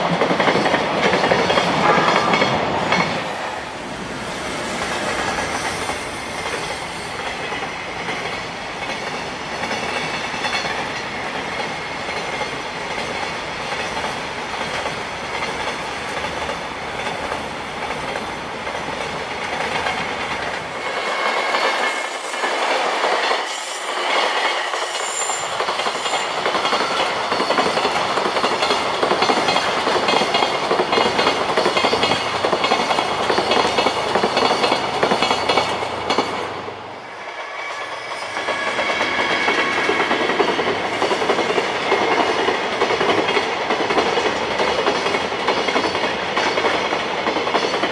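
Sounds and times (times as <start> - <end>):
freight train passing: 0.0 - 47.9
wheels clacking over rail joints: 24.1 - 36.8.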